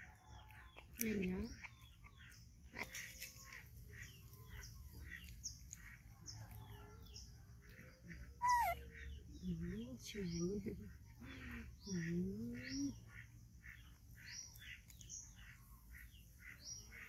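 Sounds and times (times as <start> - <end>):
small birds chirping: 0.0 - 17.0
bird call sliding downward: 8.4 - 8.8.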